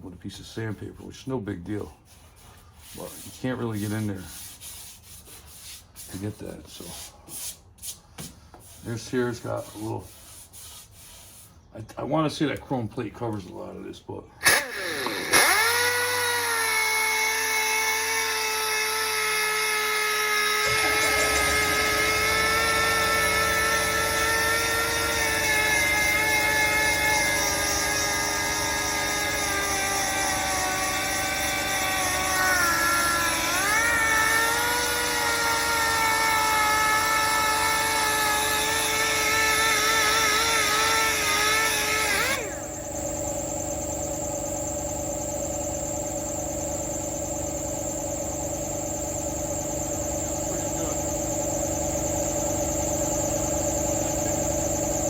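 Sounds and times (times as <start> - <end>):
air tool high whine: 14.4 - 55.0.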